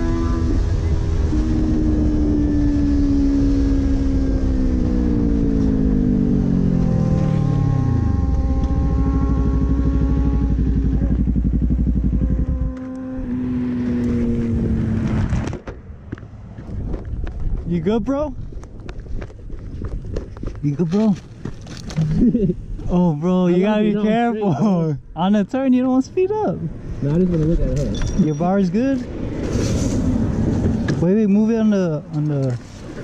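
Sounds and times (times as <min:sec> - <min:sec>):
motorcycle engine slowing and idling: 0:00.0 - 0:17.7.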